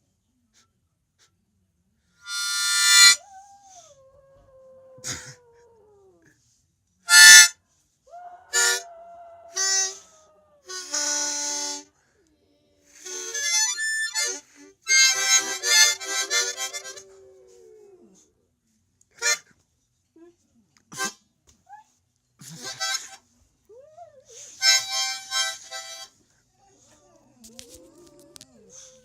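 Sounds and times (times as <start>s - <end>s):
dog howling: 2.9s - 6.3s, 8.1s - 11.8s, 13.7s - 18.3s, 26.8s - 29.0s
harmonica chordal bursts: 13.0s - 17.0s.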